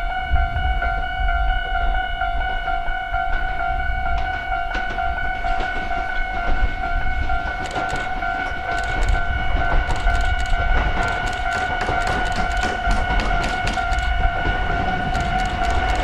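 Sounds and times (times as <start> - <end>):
electric train rumble: 0.0 - 16.0
wheels clicking: 7.4 - 16.0.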